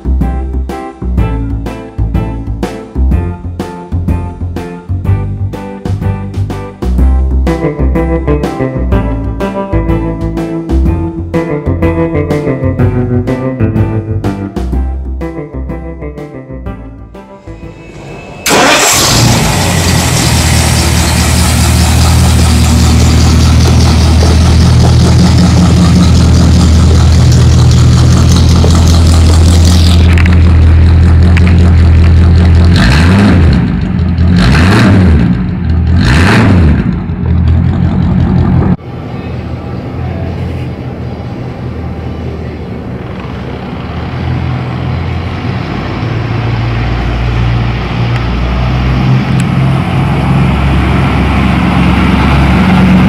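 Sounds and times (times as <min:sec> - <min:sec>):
car engine starting and idling: 0:06.3 - 0:53.0
engine revving: 0:17.4 - 0:38.8, 0:43.2 - 0:53.0.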